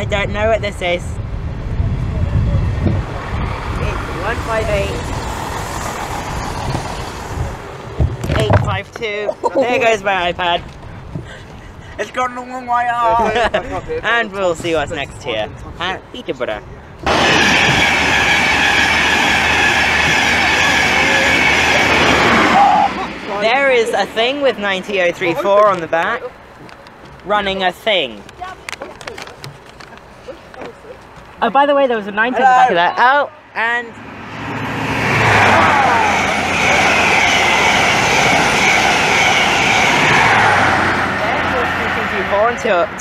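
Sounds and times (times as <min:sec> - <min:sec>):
train wheels rushing on rails: 0:02.0 - 0:08.8, 0:17.0 - 0:25.1, 0:34.8 - 0:42.7
high whining tones: 0:17.0 - 0:24.4, 0:33.9 - 0:43.0.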